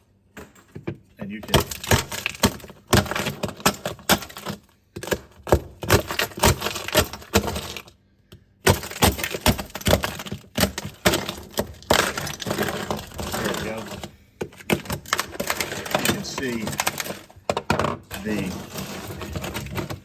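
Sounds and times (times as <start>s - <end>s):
spatula chipping ice: 1.5s - 7.9s, 8.6s - 17.4s, 18.0s - 20.0s.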